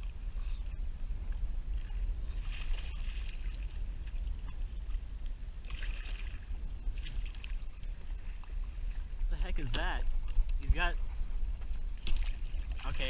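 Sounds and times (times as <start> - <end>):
steady low rumble: 0.0 - 13.0
water lapping against kayak hull: 0.0 - 13.0.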